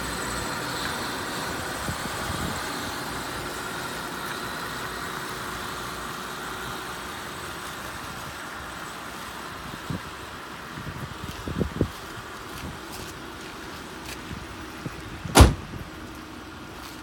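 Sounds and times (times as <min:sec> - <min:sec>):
car engine idling: 0:00.0 - 0:10.8, 0:13.2 - 0:16.9.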